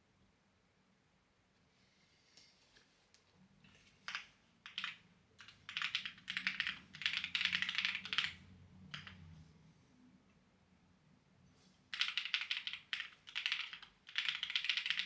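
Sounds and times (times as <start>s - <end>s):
typing on clacky keyboard: 4.1s - 9.2s, 11.9s - 15.0s.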